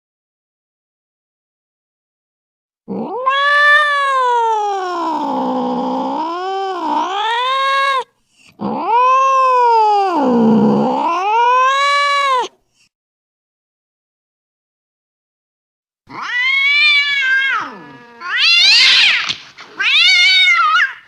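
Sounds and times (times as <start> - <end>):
cat yowling: 2.9 - 12.5, 16.1 - 21.0.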